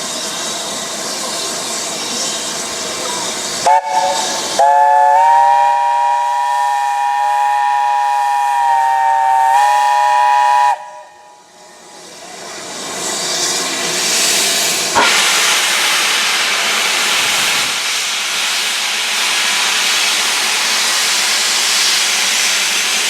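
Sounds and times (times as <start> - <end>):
steam locomotive hissing: 0.0 - 23.0
steam locomotive whistle: 3.6 - 11.5.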